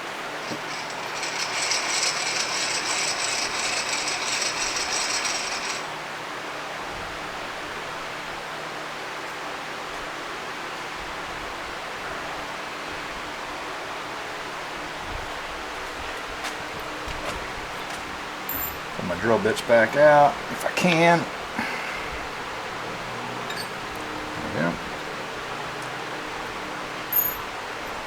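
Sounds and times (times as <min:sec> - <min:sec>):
tool mechanism clicking rapidly: 0:00.4 - 0:05.8.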